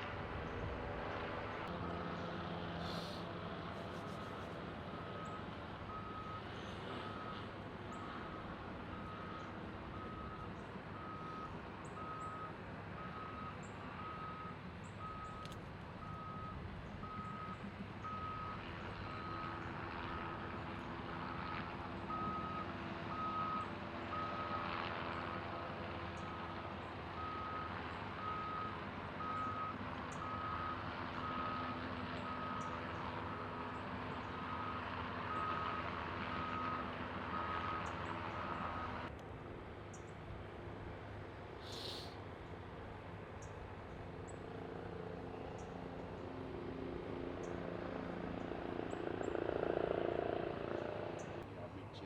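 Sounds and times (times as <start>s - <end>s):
diesel engine running: 0.0s - 52.0s
reversing alarm beeping: 7.9s - 19.5s, 27.2s - 32.7s, 34.4s - 39.0s.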